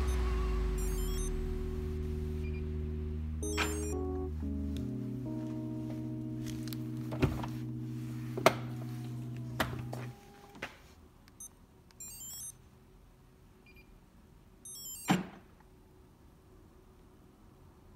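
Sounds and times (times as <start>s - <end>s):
high stepped electronic beeps: 0.0s - 4.3s, 12.0s - 12.5s, 14.7s - 15.1s
background music: 0.0s - 10.5s.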